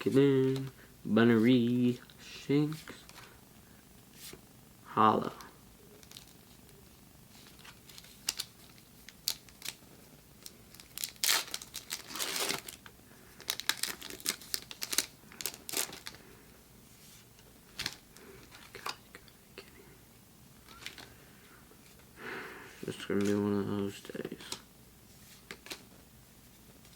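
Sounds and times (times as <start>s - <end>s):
foil wrapper crinkling: 6.0s - 6.8s, 7.4s - 9.8s, 10.4s - 16.2s, 17.7s - 19.0s, 20.6s - 21.2s
foil wrapper tearing: 7.5s - 9.8s, 10.7s - 12.8s, 13.4s - 16.2s.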